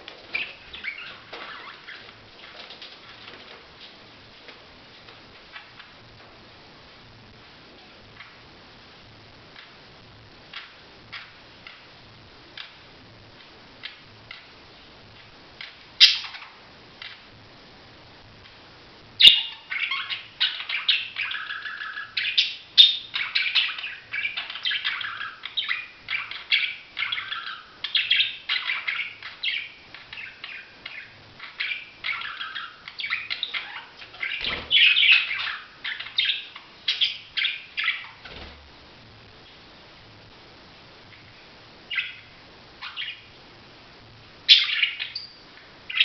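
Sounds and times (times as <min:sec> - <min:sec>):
budgerigars chirping: 0:00.3 - 0:02.6, 0:15.6 - 0:17.2, 0:19.2 - 0:38.4, 0:41.9 - 0:43.3, 0:44.5 - 0:46.0.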